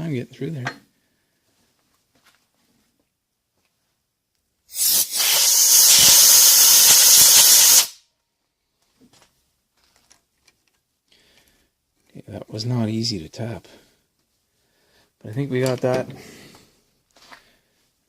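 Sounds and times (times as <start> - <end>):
pressurised nozzle hissing: 4.7 - 8.0.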